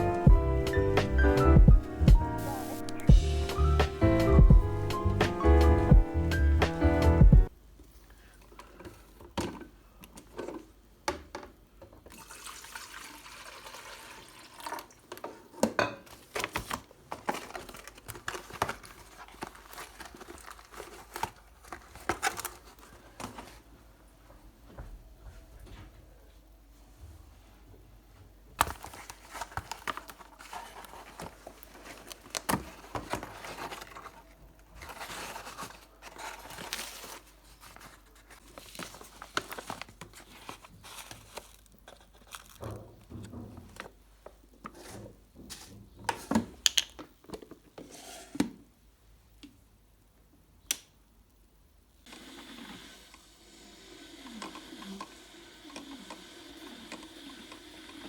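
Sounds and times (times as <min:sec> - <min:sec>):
paper rustling and crinkling: 0:16.1 - 0:23.8, 0:28.6 - 0:44.0.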